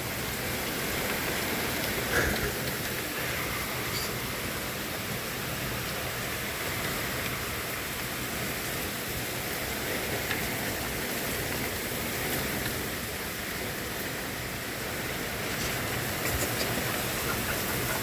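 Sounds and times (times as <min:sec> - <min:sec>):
heavy rain hissing: 0:00.0 - 0:18.0
faint raindrop ticks: 0:09.9 - 0:12.8, 0:15.6 - 0:18.0.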